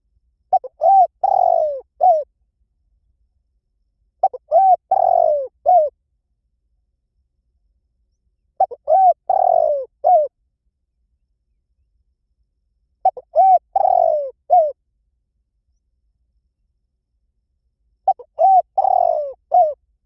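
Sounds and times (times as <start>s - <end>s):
dove cooing: 0.5s - 2.3s, 4.2s - 5.9s, 8.6s - 10.3s, 13.0s - 14.8s, 18.0s - 19.8s.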